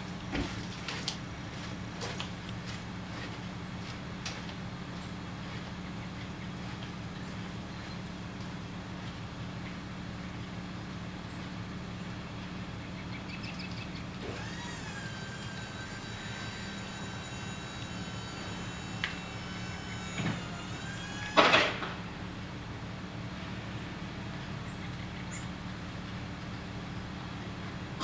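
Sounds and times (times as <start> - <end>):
truck idling: 13.9 - 24.8
electric motor whine: 14.0 - 22.9.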